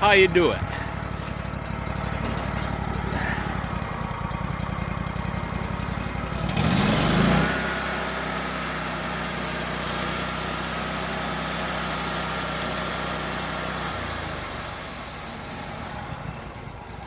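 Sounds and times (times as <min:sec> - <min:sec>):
sawmill engine revving: 0:00.0 - 0:17.0
band saw blade cutting wood: 0:06.5 - 0:16.2.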